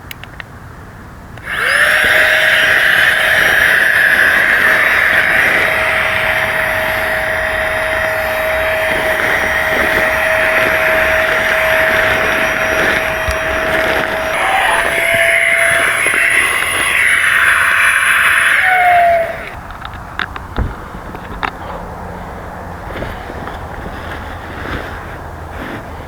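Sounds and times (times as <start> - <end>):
rushing air: 1.4 - 26.0
small electric motor whining: 1.4 - 26.0.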